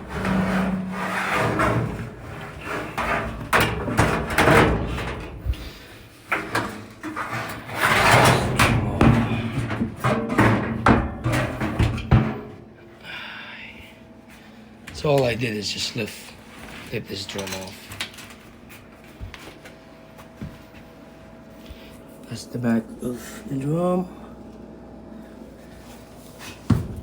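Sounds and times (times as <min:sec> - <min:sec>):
metal knocks and clanks: 0:00.0 - 0:05.4, 0:06.4 - 0:12.6
metal scraping: 0:00.0 - 0:05.4, 0:07.0 - 0:12.5.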